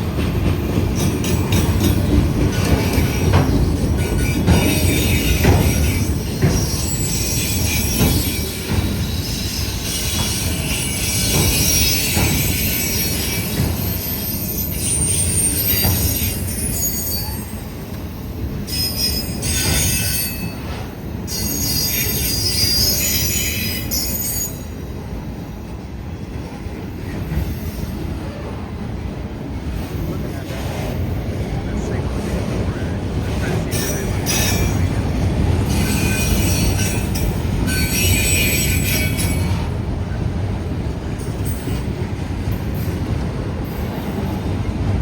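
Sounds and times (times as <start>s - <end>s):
freight train rumble: 0.0s - 45.0s
train wheel clicks: 0.2s - 9.0s
train wheels squealing: 0.6s - 25.8s, 26.7s - 28.7s, 29.7s - 40.3s, 41.0s - 44.9s.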